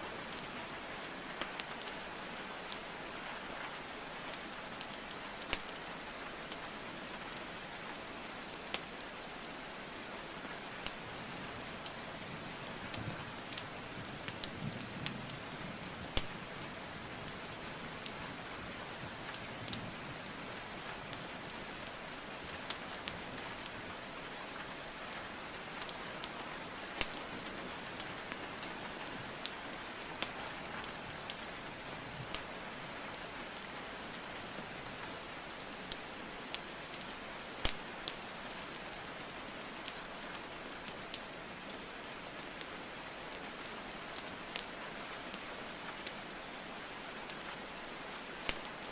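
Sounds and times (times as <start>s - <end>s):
rain hiss: 0.0s - 48.9s
burning logs popping and crackling: 4.4s - 5.9s, 10.8s - 11.0s, 12.6s - 15.2s, 16.1s - 18.5s, 19.2s - 23.8s, 25.1s - 31.5s, 32.2s - 32.5s, 35.8s - 38.9s, 39.5s - 41.9s, 48.4s - 48.9s.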